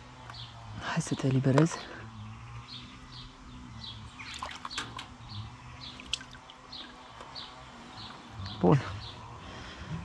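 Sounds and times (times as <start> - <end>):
small bird chirping: 0.2 - 9.3
small stream trickling: 4.0 - 8.7
splashes and knocks: 5.9 - 7.0.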